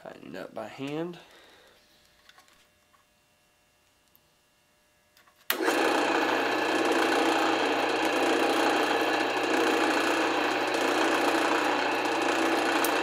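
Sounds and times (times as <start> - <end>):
drill press motor humming: 5.5 - 13.0.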